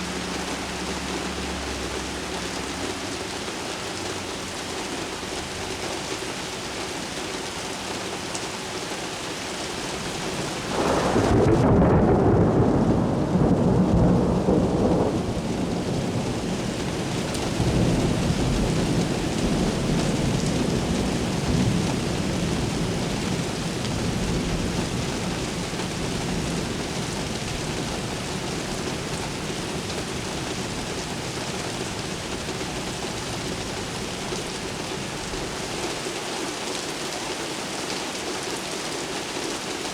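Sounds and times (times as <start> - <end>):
steady rain: 0.0 - 39.9
thunder rumbling: 10.3 - 35.3.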